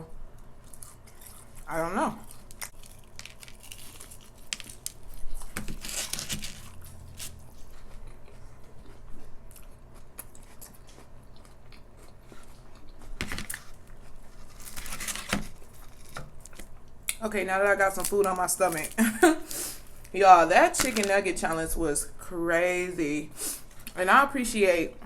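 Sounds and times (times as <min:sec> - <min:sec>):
person chewing crunchy food: 0:00.4 - 0:17.2.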